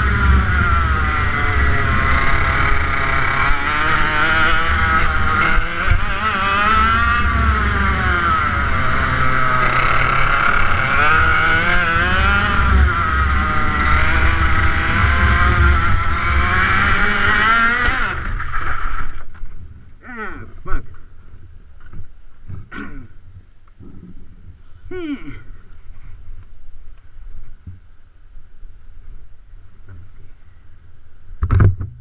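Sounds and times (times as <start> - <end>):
kart engine revving: 0.0 - 19.2.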